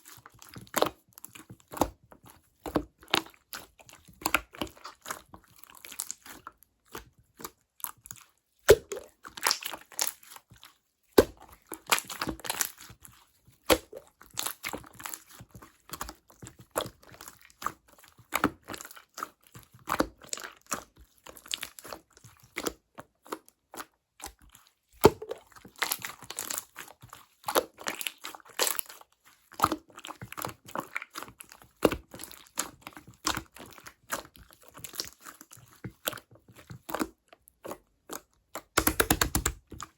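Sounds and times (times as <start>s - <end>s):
slime squished by hand: 2.9s - 17.6s, 25.0s - 29.0s, 29.6s - 39.9s
air bubbles popping in slime: 38.7s - 39.8s.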